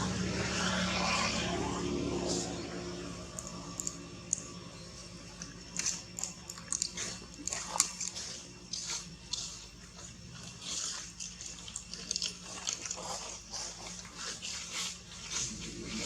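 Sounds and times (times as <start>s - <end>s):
faint low hum: 0.0s - 16.0s
small crisp crunches and clicks: 5.3s - 15.5s.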